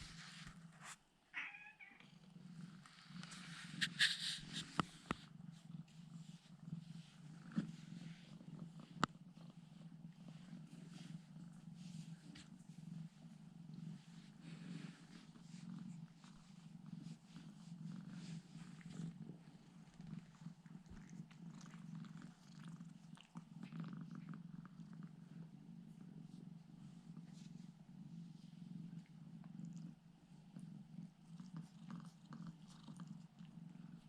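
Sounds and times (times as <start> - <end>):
cat purring: 0.0 - 34.0
faint ticks and rustles: 1.9 - 34.0.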